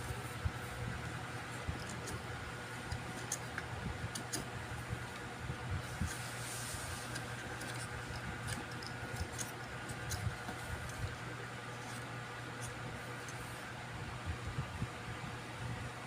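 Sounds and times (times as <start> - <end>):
steady low hum: 0.0 - 16.0
small clicks and taps: 2.8 - 4.5.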